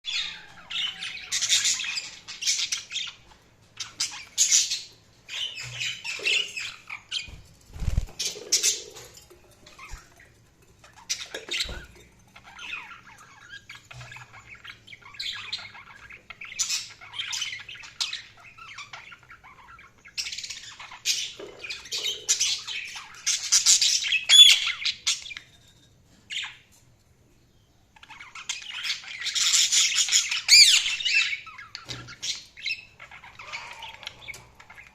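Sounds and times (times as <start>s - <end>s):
budgerigars chattering: 28.1s - 34.9s.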